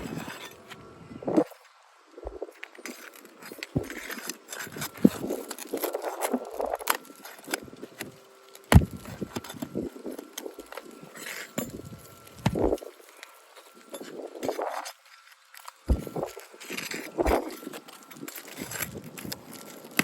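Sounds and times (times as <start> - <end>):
shingles scraping and rustling: 0.0 - 1.6, 2.4 - 20.0.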